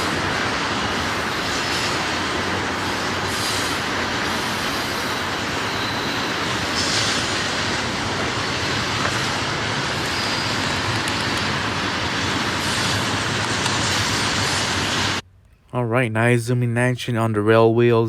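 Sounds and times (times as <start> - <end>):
freight train wheels rolling: 0.0 - 15.2
faint high wheel squeal: 3.4 - 7.5, 9.9 - 13.0.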